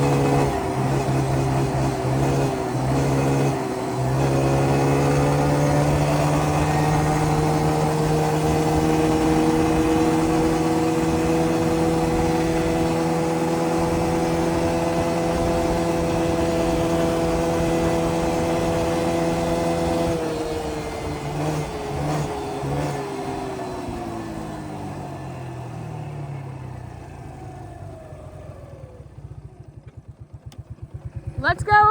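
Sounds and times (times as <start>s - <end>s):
atv engine running: 0.0s - 31.9s.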